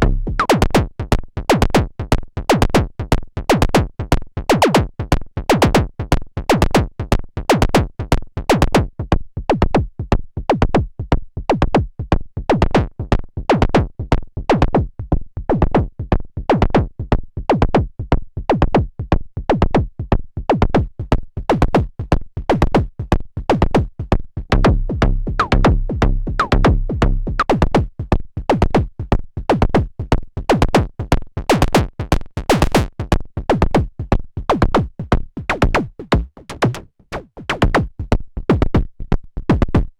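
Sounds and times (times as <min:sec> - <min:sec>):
low droning bass note: 0:00.0 - 0:00.5, 0:24.5 - 0:27.4
synthesizer drum hits: 0:00.0 - 0:00.8, 0:24.5 - 0:27.5, 0:34.5 - 0:37.9.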